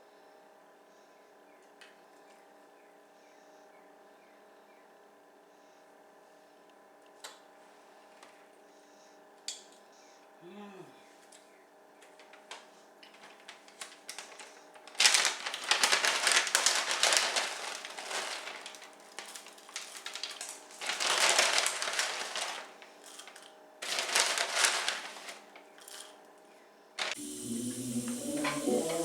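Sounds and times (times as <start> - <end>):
faint steady hum: 0.0 - 29.0
rustling and crinkling: 11.2 - 26.4, 27.0 - 29.0.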